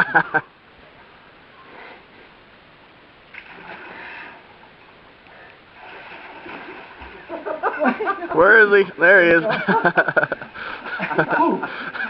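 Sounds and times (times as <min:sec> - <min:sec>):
water splashing and sloshing: 0:03.2 - 0:08.3.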